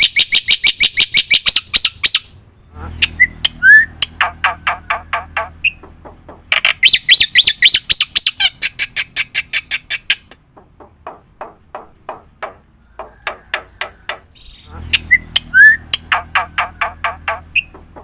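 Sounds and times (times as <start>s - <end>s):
starling squawking chirps: 0.0s - 5.9s, 6.5s - 10.3s, 12.9s - 17.8s.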